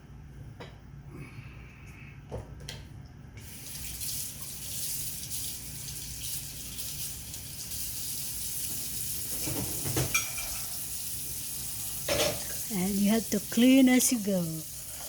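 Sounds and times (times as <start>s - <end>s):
faucet running into a sink: 3.4s - 15.0s.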